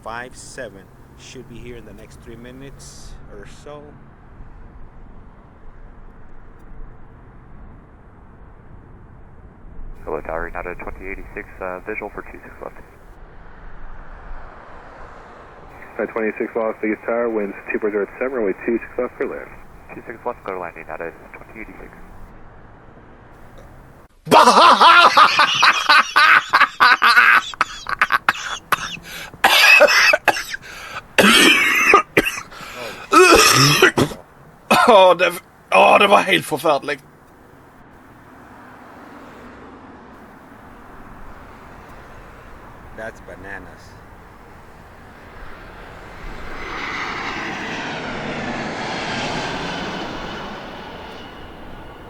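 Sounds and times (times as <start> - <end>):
person's voice in short bursts: 0.0 - 3.8, 10.1 - 12.8, 34.7 - 37.0
jet aircraft passing close by: 4.0 - 24.1, 27.4 - 34.8, 35.4 - 52.0.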